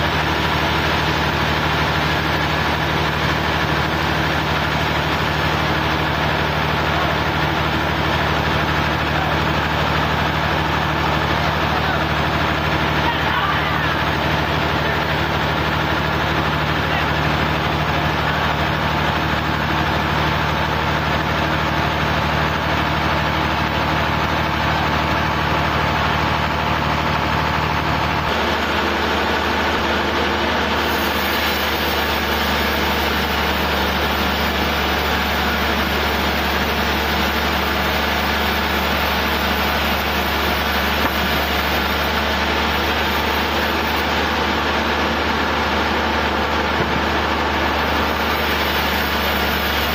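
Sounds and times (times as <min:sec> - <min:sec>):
sawmill engine running: 0:00.0 - 0:49.9.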